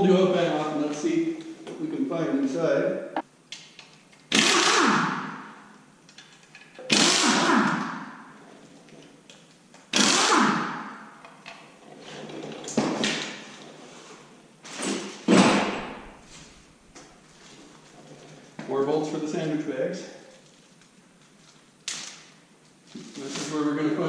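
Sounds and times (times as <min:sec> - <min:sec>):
power tool spinning bolts: 0:04.3 - 0:05.2, 0:06.8 - 0:07.8, 0:09.9 - 0:10.7.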